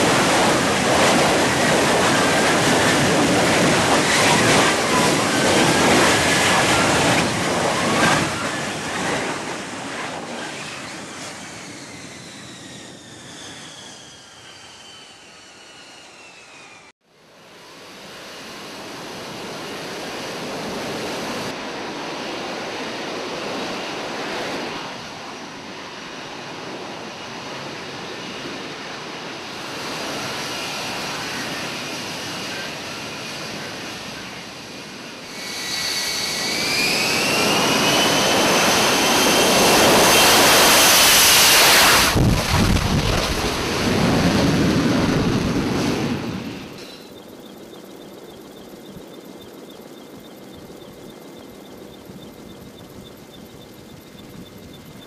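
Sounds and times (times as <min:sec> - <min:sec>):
jet engine rushing: 0:00.0 - 0:16.9, 0:17.6 - 0:47.2.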